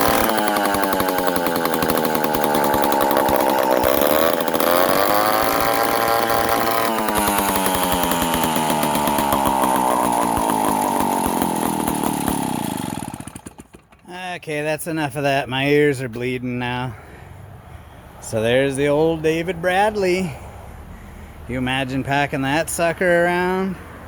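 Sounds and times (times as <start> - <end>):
chainsaw engine running: 0.0 - 14.2.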